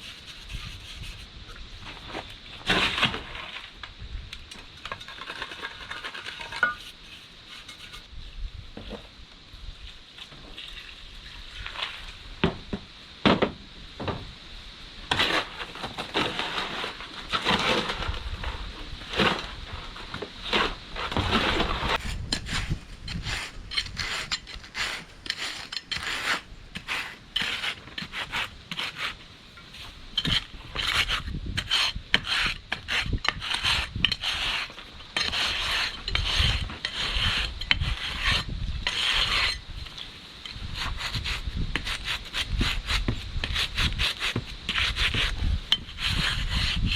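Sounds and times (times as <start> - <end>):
tool scraping wet concrete: 0.0 - 1.3, 4.8 - 8.1, 15.1 - 46.9.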